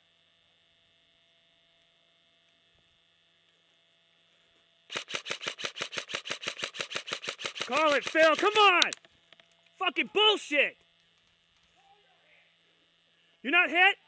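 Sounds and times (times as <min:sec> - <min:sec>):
faint hum: 0:00.0 - 0:14.0
airsoft gun rapid shots: 0:04.9 - 0:09.0.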